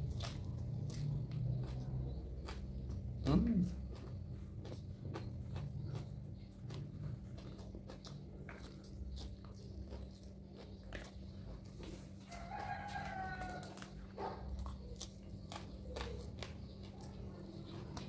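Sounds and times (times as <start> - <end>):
chewing crunchy vegetables: 0.0 - 18.0
steady low hum: 0.0 - 18.0.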